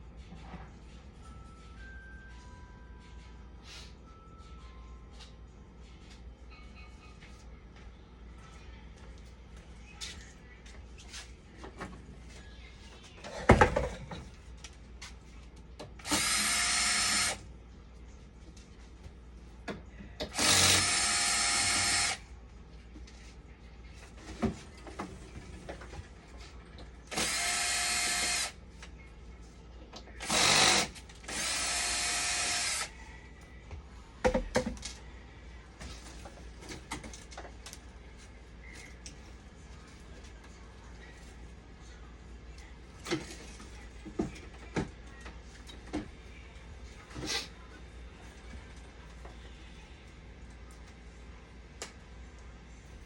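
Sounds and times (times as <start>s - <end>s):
power drill whining: 16.0s - 17.4s, 20.3s - 22.2s, 27.1s - 28.5s, 30.2s - 32.9s.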